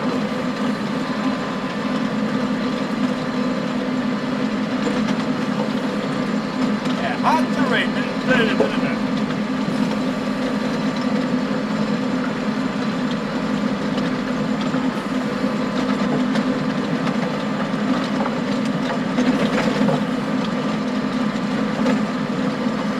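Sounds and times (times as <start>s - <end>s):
tractor engine running under load: 0.0s - 22.9s.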